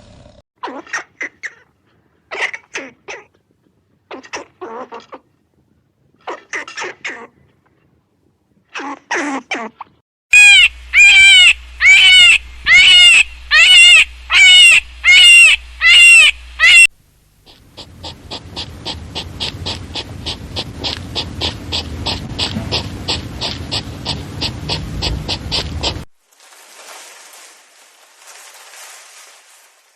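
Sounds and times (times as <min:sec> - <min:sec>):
loud arching animal calls: 0:10.3 - 0:26.1
short clicking animal calls: 0:17.5 - 0:26.0
low rumble: 0:17.6 - 0:26.1.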